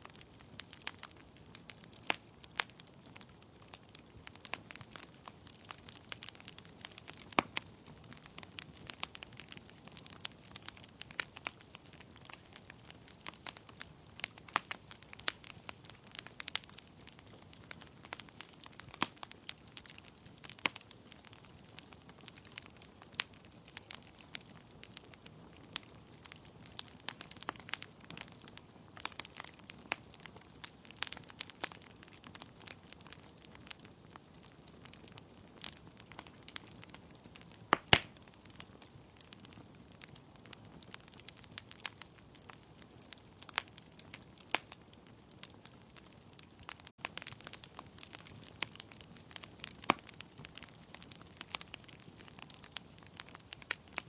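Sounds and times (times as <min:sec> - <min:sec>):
logs crackling and popping: 0:00.0 - 0:54.0
soft hiss of flames: 0:00.0 - 0:54.0.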